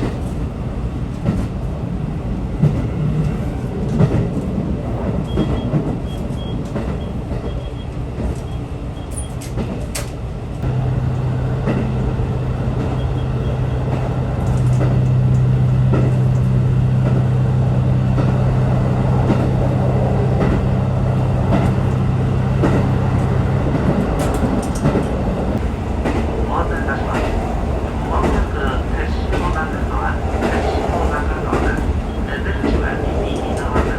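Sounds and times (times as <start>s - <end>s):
train rumble: 0.0s - 33.9s
steady low drone: 10.6s - 24.7s.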